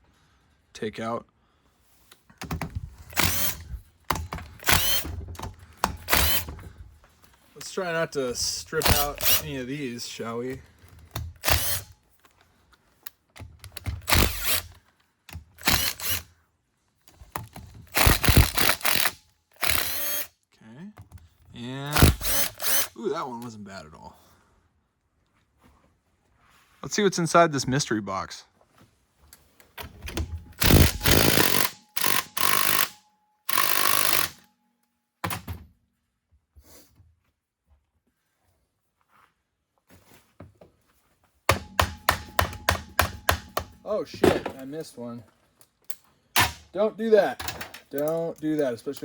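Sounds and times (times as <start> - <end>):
power driver loosening screws: 2.4 - 6.7, 8.7 - 9.6, 10.9 - 12.0, 13.4 - 16.3, 17.1 - 20.3, 21.9 - 23.0, 30.1 - 34.5.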